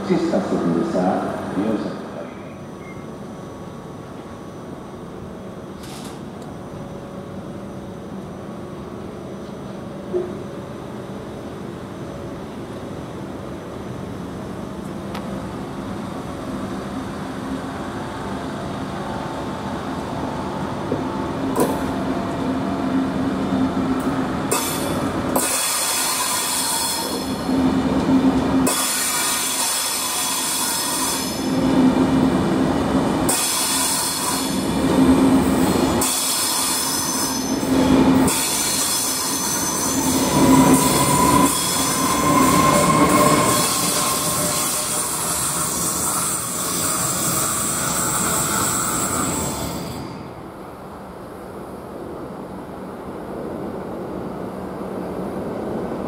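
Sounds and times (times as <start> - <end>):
electric locomotive whine: 0.0 - 56.0
train wheel squeal: 1.8 - 3.2, 24.5 - 27.5, 28.6 - 31.6, 33.3 - 34.8, 35.4 - 50.4.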